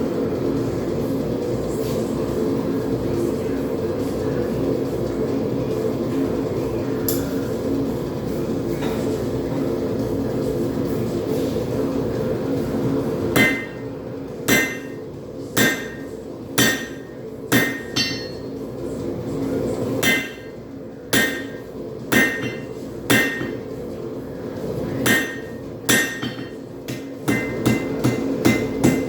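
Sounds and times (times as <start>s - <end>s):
hammer striking spike on anvil: 13.4s - 13.8s, 14.5s - 15.0s, 15.6s - 18.5s, 20.0s - 23.6s, 25.0s - 29.0s.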